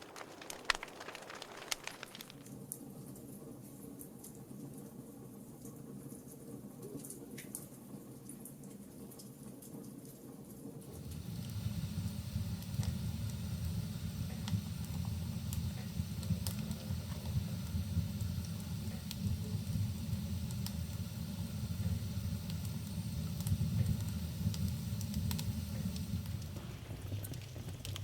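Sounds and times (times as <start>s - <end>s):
low rumble of flames: 0.0s - 2.4s, 10.8s - 28.0s
burning logs crackling and popping: 0.0s - 2.5s, 10.8s - 28.0s.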